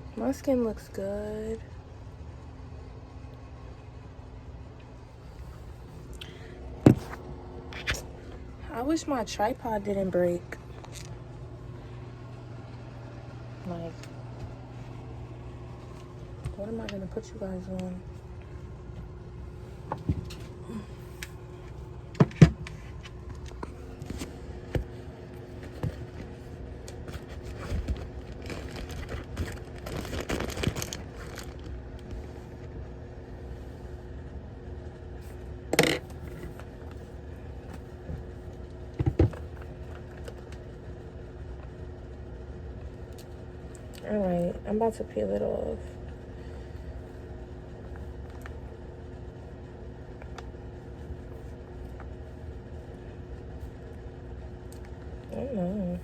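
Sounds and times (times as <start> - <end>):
steady low hum: 0.0 - 56.0
objects knocking and clicking: 27.1 - 31.7.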